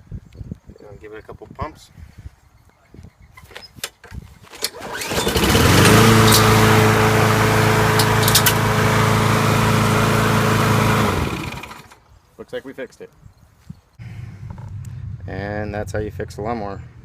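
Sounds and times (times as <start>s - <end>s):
lawnmower engine running: 4.6s - 12.0s
recoil starter clicks: 7.9s - 8.7s.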